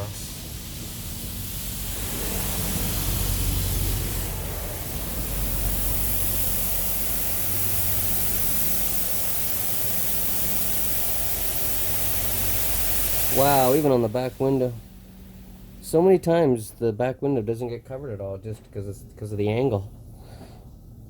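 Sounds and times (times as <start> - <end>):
low hum: 0.0 - 9.5, 10.2 - 19.2
car wash spray hissing: 0.0 - 16.1.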